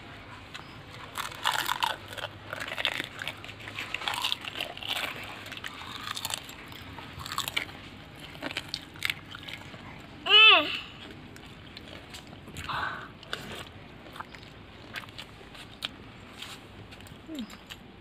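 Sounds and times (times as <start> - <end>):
crisp shell crunching when chewed: 0.5 - 10.1, 11.0 - 17.9.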